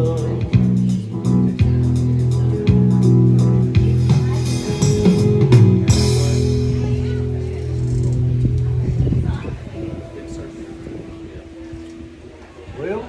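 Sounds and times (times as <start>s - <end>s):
country band playing: 0.0s - 11.9s.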